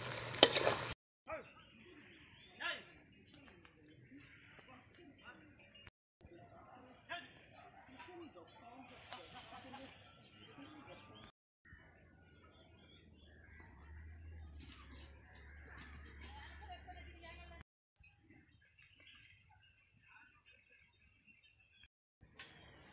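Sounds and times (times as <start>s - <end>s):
insect chorus buzzing: 0.0s - 15.6s.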